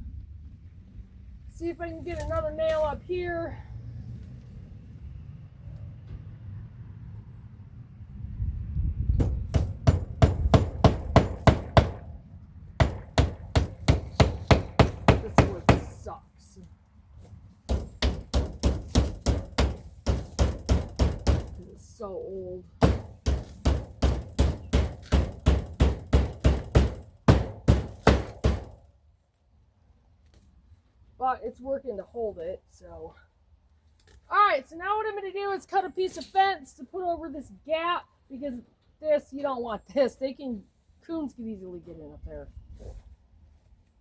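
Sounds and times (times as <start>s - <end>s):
hammer driving nail into wood: 9.2s - 12.1s, 12.8s - 16.0s, 17.7s - 21.6s, 22.8s - 28.8s.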